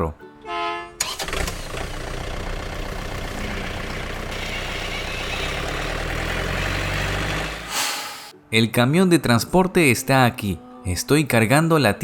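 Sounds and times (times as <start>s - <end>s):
truck engine running: 1.0s - 8.3s.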